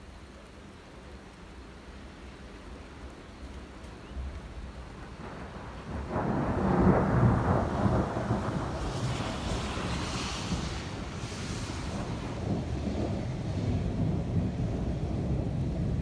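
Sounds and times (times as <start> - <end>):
steady rain: 0.0 - 16.0
thunder rumbling: 4.2 - 16.0.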